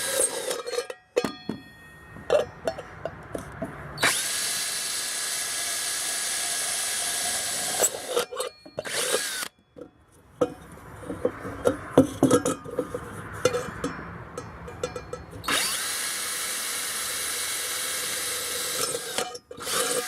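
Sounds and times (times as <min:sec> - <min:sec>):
electric drill boring metal: 0:00.0 - 0:00.8, 0:04.0 - 0:09.5, 0:15.5 - 0:20.0
handling knocks and clicks: 0:00.5 - 0:03.8, 0:09.6 - 0:15.5.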